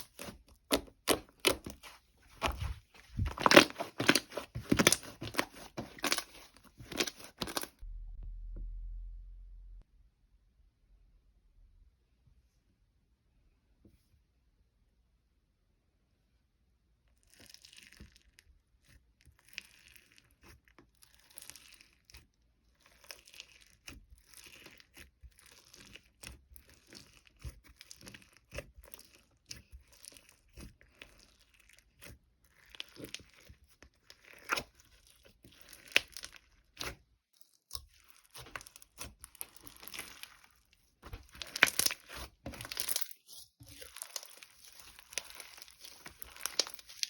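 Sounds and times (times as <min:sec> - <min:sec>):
crinkling handling noise: 0:00.0 - 0:07.8, 0:32.7 - 0:47.0.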